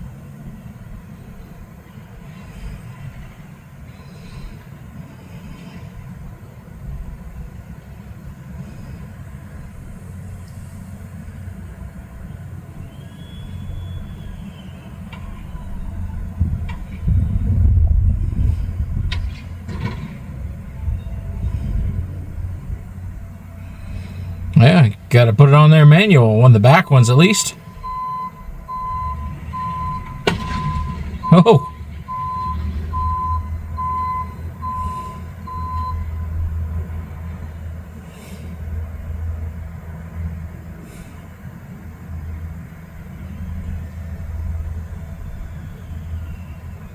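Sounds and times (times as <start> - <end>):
low vehicle rumble: 0.0 - 46.9
truck engine idling: 0.0 - 46.9
truck backup alarm beeping: 6.0 - 40.7, 42.2 - 46.9
faint high squeal: 12.3 - 17.4, 45.2 - 46.9.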